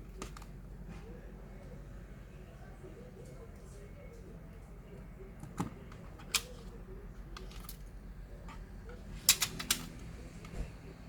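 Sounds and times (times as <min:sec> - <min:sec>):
clicks of laptop parts handled: 0:09.3 - 0:10.0.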